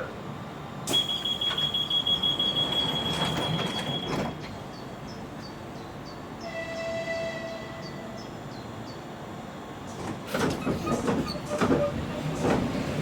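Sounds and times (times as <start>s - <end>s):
train knocking and clattering: 0.9s - 6.0s, 9.8s - 13.0s.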